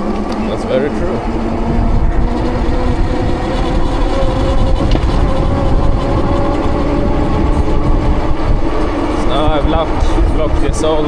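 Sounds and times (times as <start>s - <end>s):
steady motor hum: 0.0s - 11.0s
wind rushing over microphone: 0.0s - 11.0s.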